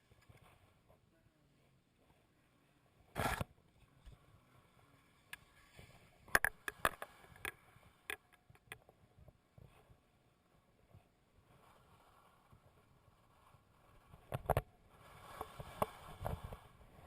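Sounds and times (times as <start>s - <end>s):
skis scraping on snow: 15.0s - 17.0s.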